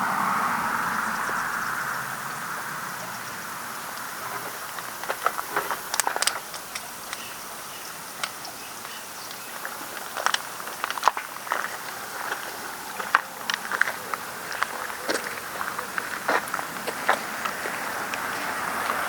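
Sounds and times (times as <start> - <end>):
outdoor background hiss: 0.0 - 19.0
footsteps and scuffs on a path: 4.0 - 19.0.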